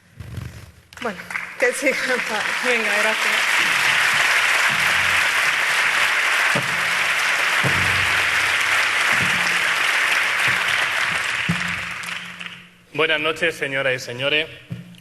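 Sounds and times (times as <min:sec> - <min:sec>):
audience applauding: 0:01.0 - 0:12.8.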